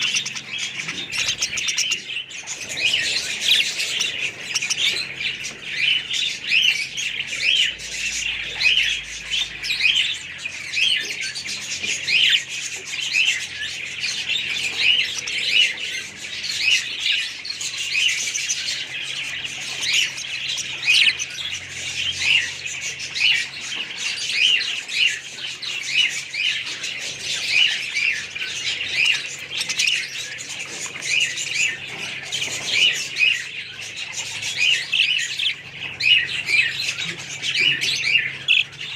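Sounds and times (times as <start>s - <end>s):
budgerigars chirping: 0.0s - 38.9s.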